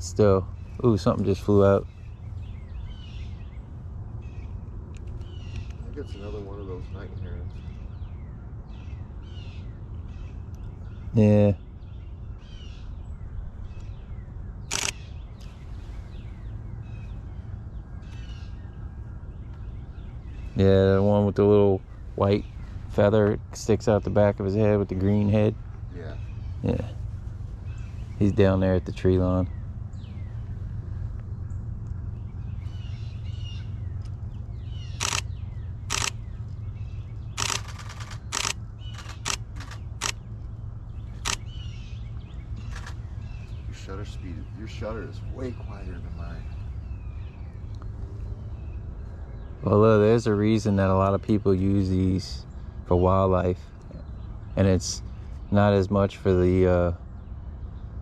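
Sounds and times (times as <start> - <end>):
faint bird chirps: 0.0 - 57.9
steady low rumble: 0.0 - 58.0
camera shutter burst: 14.7 - 15.0, 35.0 - 35.3, 35.9 - 36.2, 37.4 - 40.2, 41.2 - 41.5.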